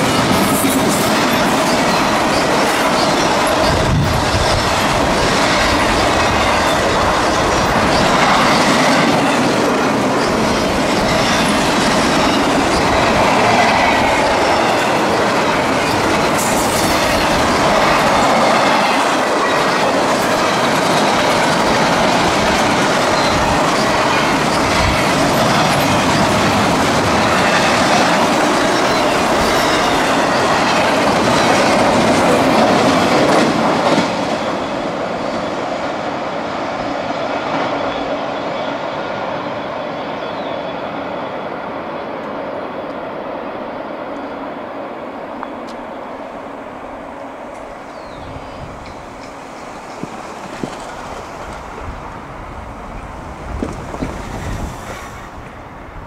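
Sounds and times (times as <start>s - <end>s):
high wheel squeal: 0.0s - 32.0s
steel wheels rumbling on rails: 0.0s - 56.0s.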